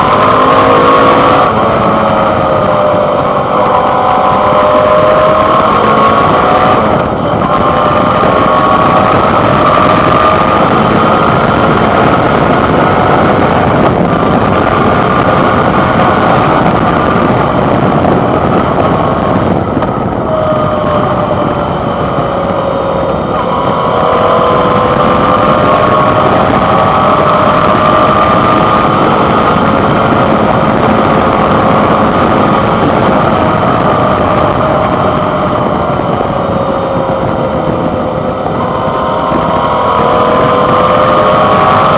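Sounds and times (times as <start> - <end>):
motorcycle engine running: 0.0 - 41.9
wind and road noise: 0.0 - 41.9.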